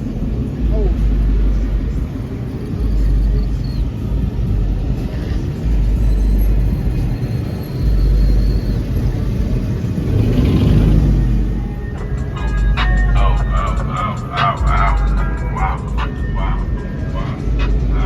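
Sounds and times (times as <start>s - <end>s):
truck engines rumbling: 0.0s - 18.0s.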